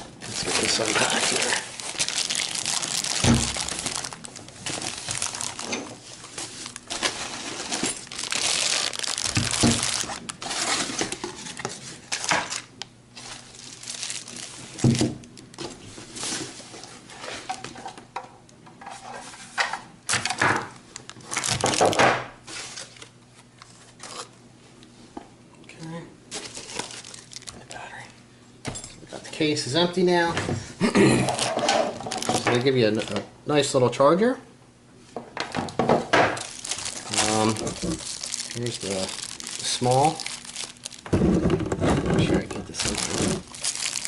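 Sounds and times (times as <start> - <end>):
plastic packaging crinkling: 0.0 - 16.4, 20.2 - 23.1, 26.3 - 27.9, 31.3 - 33.2, 36.4 - 44.0
hard objects clattering: 6.6 - 12.6, 31.2 - 33.2, 35.6 - 44.0.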